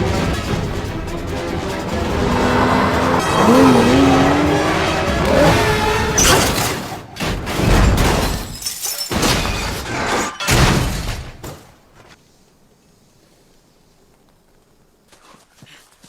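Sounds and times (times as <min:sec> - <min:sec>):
car crash impacts: 0:02.2 - 0:11.8
glass shattering: 0:06.2 - 0:11.2.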